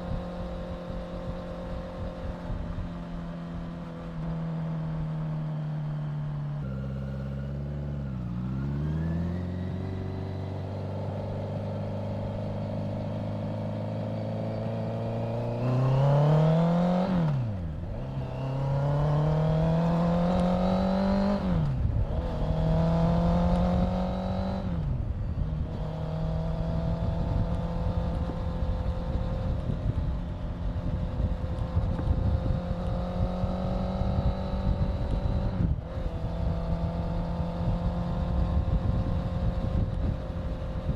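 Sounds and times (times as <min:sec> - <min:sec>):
motorcycle engine revving: 0:00.0 - 0:40.9
wind on microphone: 0:14.6 - 0:40.9.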